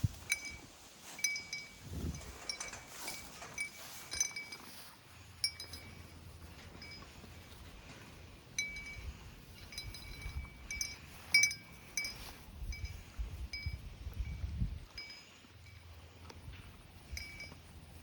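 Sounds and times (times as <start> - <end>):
dog collar tags jingling: 5.4 - 6.1, 8.6 - 12.2.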